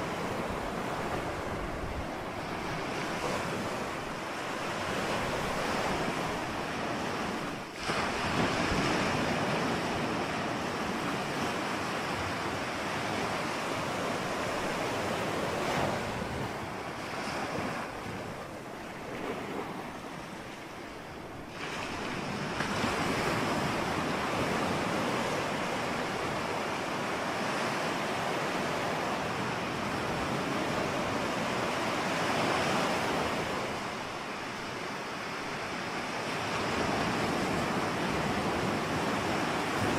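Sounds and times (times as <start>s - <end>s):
waves breaking: 0.0s - 39.9s
wind: 0.0s - 39.9s.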